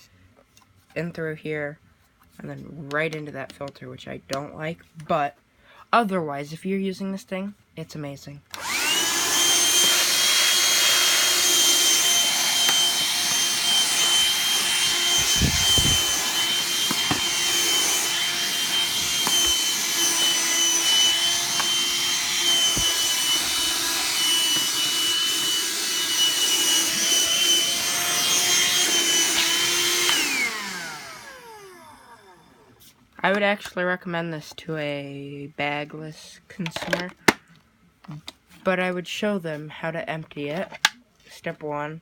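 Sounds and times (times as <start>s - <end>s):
vacuum cleaner motor running: 8.5s - 32.7s.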